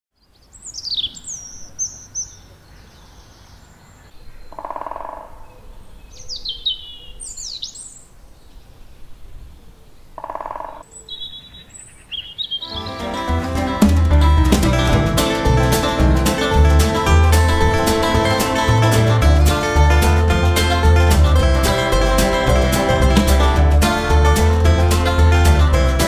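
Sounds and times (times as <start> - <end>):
songbirds whistling falling phrases: 0.2 - 2.4, 5.9 - 8.6, 10.7 - 13.0.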